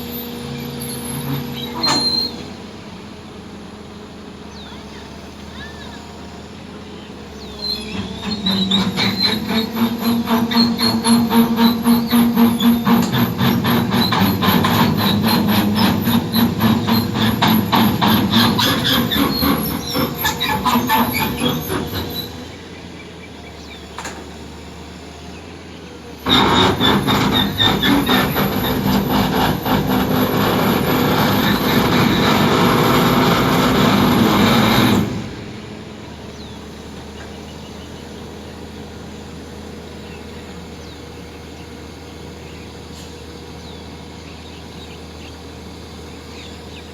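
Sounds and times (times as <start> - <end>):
crawler tracks clanking and squealing: 0.0 - 3.1, 7.3 - 24.7, 25.5 - 38.7
low engine hum: 0.0 - 46.9.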